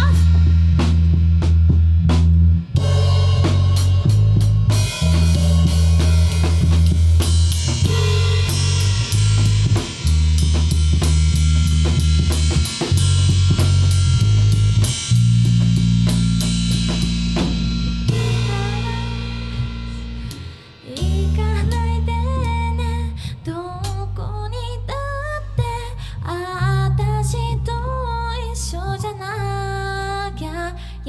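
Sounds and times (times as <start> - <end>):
drum kit: 0.0 - 24.2
electric bass: 0.0 - 31.0.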